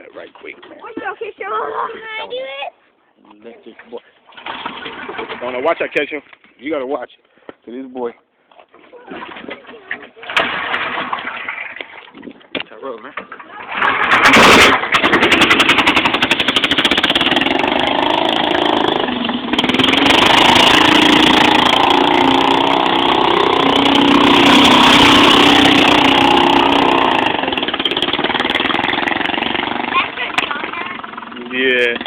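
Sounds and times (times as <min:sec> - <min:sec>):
go-kart engine revving: 0:04.4 - 0:05.7, 0:09.1 - 0:12.0, 0:13.5 - 0:32.0.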